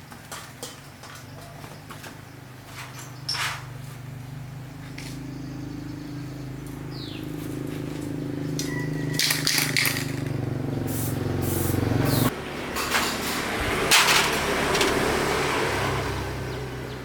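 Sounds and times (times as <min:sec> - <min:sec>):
hissing spray: 0:10.8 - 0:12.3.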